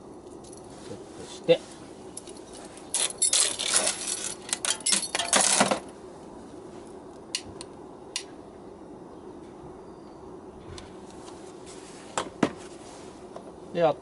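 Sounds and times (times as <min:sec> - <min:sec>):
metal lantern parts clinking: 0:02.2 - 0:05.9.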